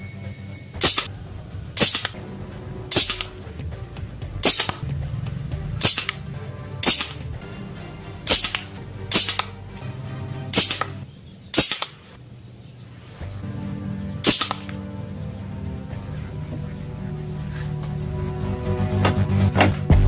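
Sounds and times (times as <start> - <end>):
toy gun shots cracking: 0.8 - 1.1, 1.8 - 2.2, 2.9 - 3.4, 4.4 - 4.8, 5.8 - 6.2, 6.8 - 7.3, 8.3 - 9.6, 10.6 - 12.1, 14.2 - 14.8.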